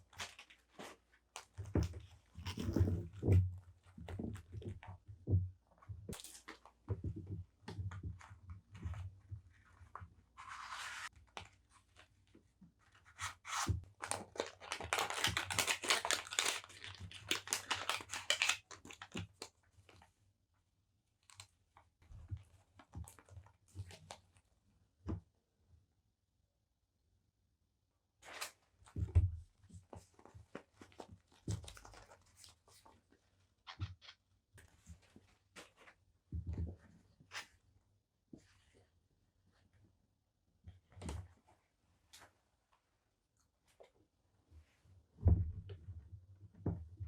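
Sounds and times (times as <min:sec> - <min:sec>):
paper rustle: 0:13.2 - 0:19.3
paper crinkling and tearing: 0:13.2 - 0:19.4.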